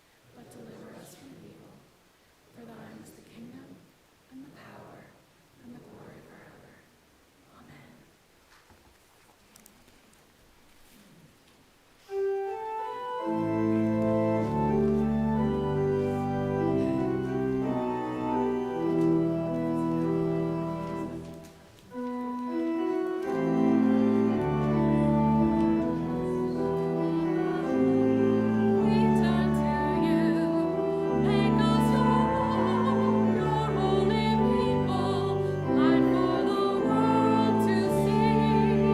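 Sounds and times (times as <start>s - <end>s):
pipe organ chords: 12.1s - 38.9s
person singing: 25.8s - 38.9s.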